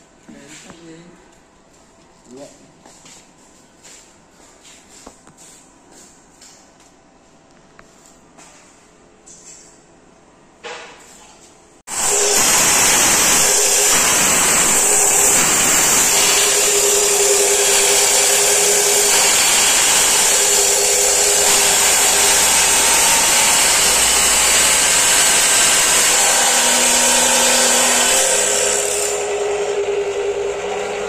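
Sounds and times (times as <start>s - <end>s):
electric saw running: 11.9s - 31.0s.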